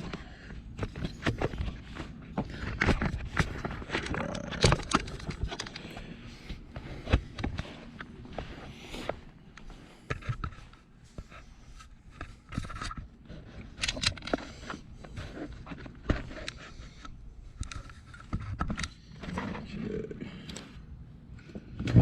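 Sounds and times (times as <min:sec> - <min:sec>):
clicks and knocks of tools: 0:12.2 - 0:19.3.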